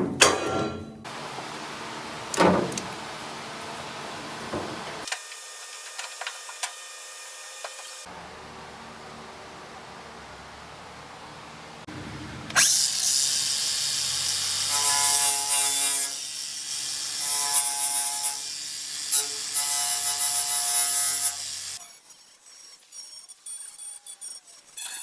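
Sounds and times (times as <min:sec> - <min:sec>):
power tool whining on sheet metal: 0:12.5 - 0:22.1.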